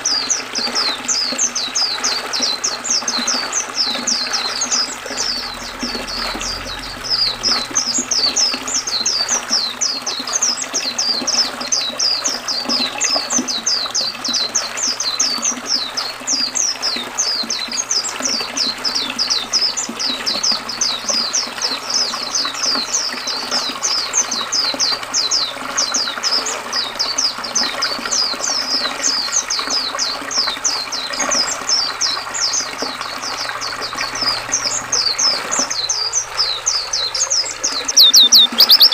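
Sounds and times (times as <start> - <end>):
flowing river water: 0.0 - 38.9
white-eye bird singing high thin notes: 35.9 - 38.9.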